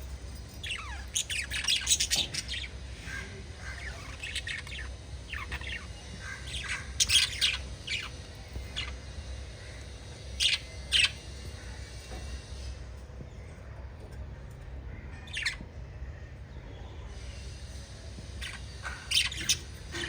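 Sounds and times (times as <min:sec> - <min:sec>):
budgerigars chirping and squawking: 0:00.5 - 0:12.0, 0:15.0 - 0:15.6, 0:18.2 - 0:20.0.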